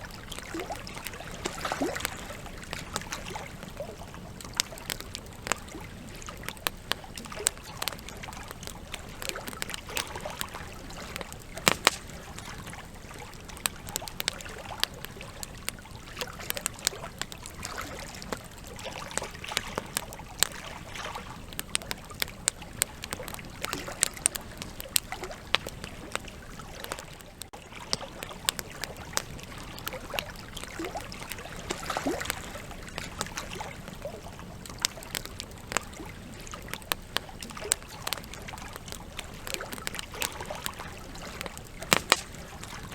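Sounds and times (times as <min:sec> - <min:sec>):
campfire crackling and popping: 0:00.0 - 0:42.9
flame rushing: 0:11.2 - 0:12.8, 0:41.4 - 0:42.9.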